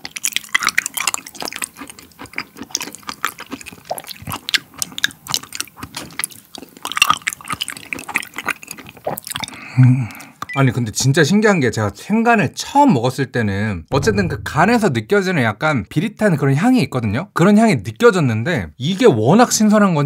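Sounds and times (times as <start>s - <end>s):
wet chewing of raw liver: 0.0s - 10.5s.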